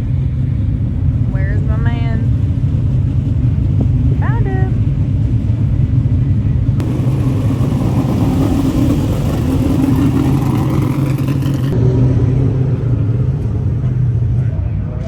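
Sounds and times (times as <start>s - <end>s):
race car engines rumbling: 0.0s - 15.0s
engine revving up: 6.8s - 15.0s.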